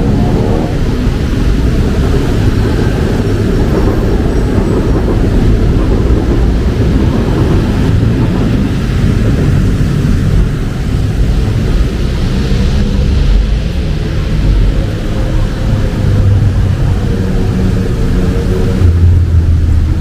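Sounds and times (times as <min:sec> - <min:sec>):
rain hissing: 0:00.0 - 0:20.0
traffic rumble on wet road: 0:00.0 - 0:20.0.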